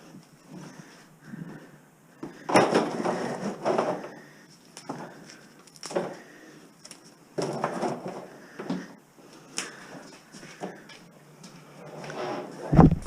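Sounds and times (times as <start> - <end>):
knocks and clatter of handling wire: 2.2 - 6.2, 6.8 - 9.0.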